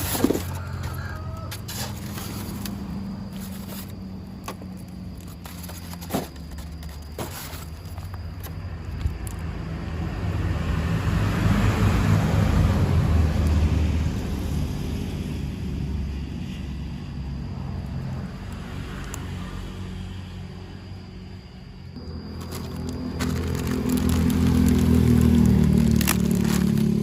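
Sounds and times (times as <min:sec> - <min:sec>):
low vehicle rumble: 0:08.2 - 0:27.0.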